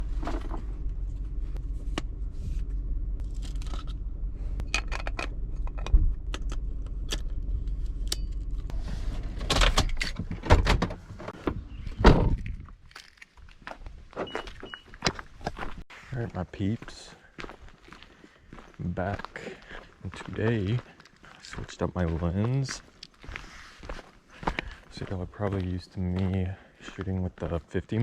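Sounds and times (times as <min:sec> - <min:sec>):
car engine rumble: 0:00.0 - 0:15.8.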